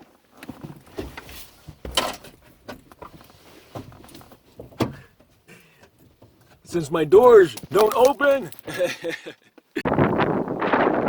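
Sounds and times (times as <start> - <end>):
knocks and rattles in a car: 4.6 - 5.1.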